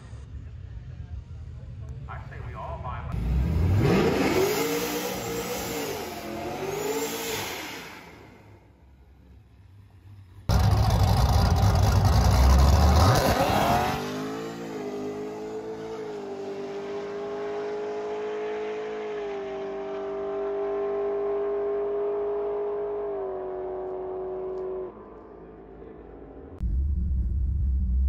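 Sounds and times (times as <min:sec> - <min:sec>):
car engine launching hard: 0:10.5 - 0:14.2.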